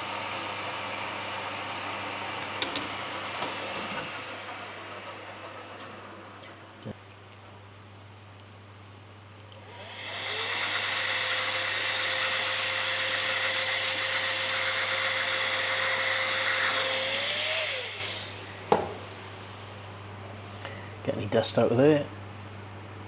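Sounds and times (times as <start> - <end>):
electric motor spinning with hiss: 9.6 - 19.4.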